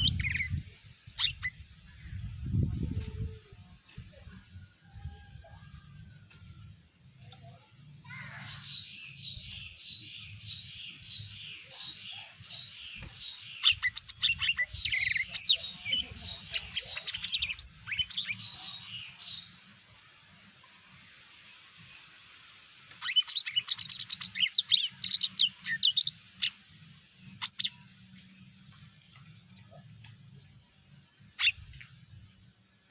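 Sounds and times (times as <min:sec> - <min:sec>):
bird singing whistles and trills: 0:00.0 - 0:00.6, 0:27.4 - 0:27.8.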